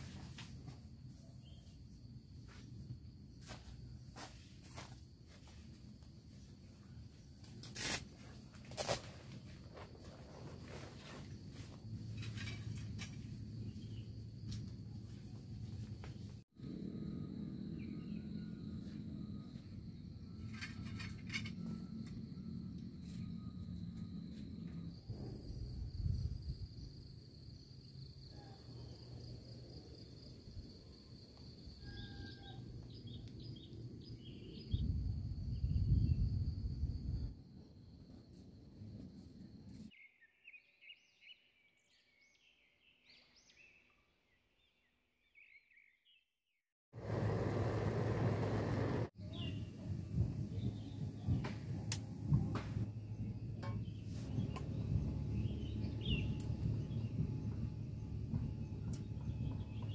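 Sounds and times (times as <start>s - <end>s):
faint bird chirping: 1.1s - 2.0s
low wind rumble: 16.6s - 28.2s, 29.0s - 39.7s, 47.0s - 59.9s
low rumbling noise: 47.0s - 59.9s.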